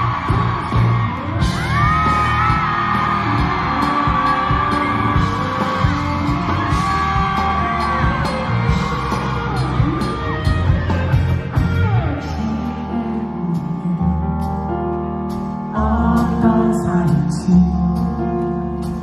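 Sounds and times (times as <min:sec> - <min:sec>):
crowd shouting and whooping: 0:00.0 - 0:12.8
person singing: 0:00.0 - 0:15.0, 0:15.7 - 0:18.9
live pop-rock band: 0:00.0 - 0:19.0.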